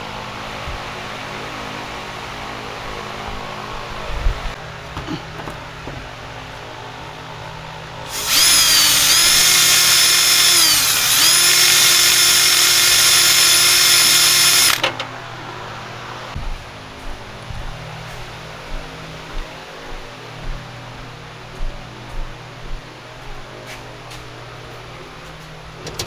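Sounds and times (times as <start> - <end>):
electric drill whining: 8.1 - 14.8.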